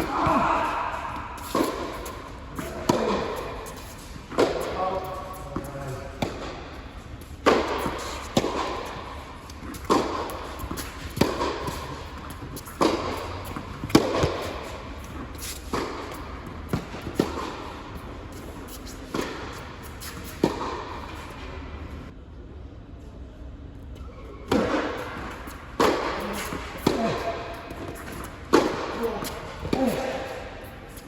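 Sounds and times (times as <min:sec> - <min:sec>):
tennis ball struck by racquets: 0:00.0 - 0:21.2, 0:24.5 - 0:30.5
ball bouncing on court: 0:07.4 - 0:17.7, 0:24.5 - 0:30.3.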